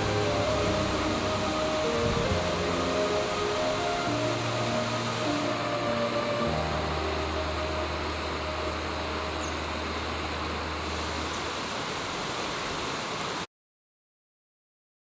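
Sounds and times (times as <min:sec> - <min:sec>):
background music: 0:00.0 - 0:11.4
river rushing over weir: 0:00.0 - 0:13.5.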